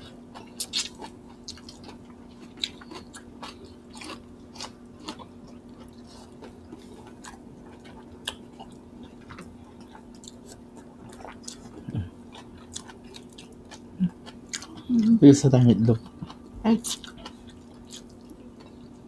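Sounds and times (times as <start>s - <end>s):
faint steady hum: 0.0s - 19.0s
chewing and wet mouth smacks: 0.3s - 14.9s, 16.0s - 19.0s.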